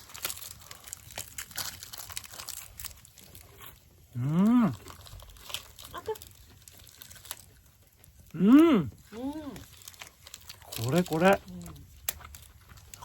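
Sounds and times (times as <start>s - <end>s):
eating sounds: 0.0s - 13.0s
faint crinkling: 0.0s - 13.0s
person humming mmm: 4.1s - 4.9s, 8.3s - 9.6s.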